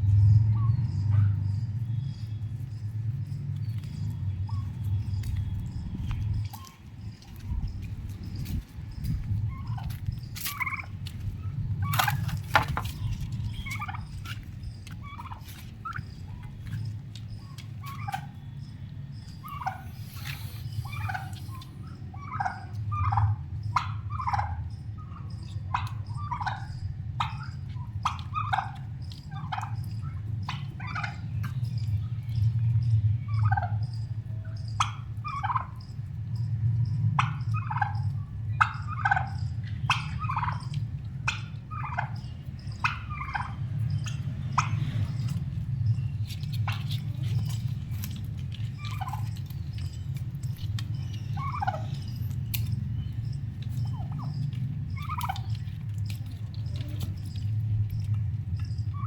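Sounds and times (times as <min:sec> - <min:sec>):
low rumble: 0:00.0 - 0:22.2
turkeys calling: 0:00.1 - 0:59.0.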